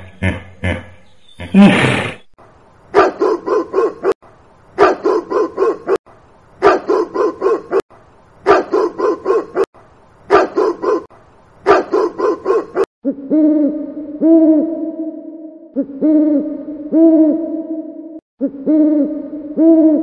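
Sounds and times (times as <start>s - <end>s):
dog barking: 2.9s - 4.2s, 4.8s - 6.0s, 6.6s - 7.8s, 8.4s - 9.7s, 10.3s - 12.9s.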